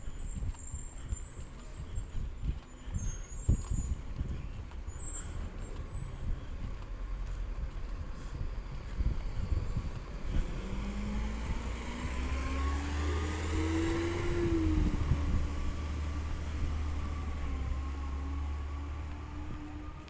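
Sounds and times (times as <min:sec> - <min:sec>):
deep hum: 0:00.0 - 0:20.0
garbage truck diesel engine: 0:05.0 - 0:20.0.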